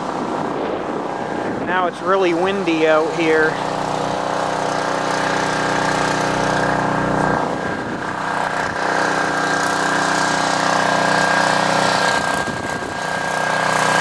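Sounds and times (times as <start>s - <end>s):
wind on microphone: 0.0s - 4.7s, 7.2s - 8.9s, 12.1s - 13.3s
generator engine running: 0.0s - 14.0s.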